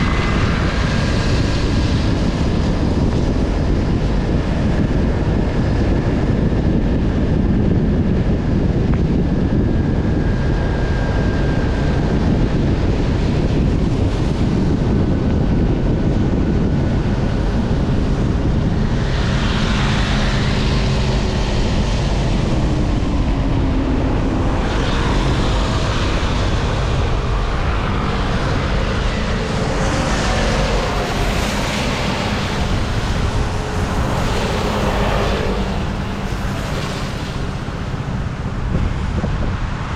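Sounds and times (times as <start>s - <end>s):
wind buffeting microphone: 0.0s - 39.9s
road traffic passing: 17.2s - 39.9s.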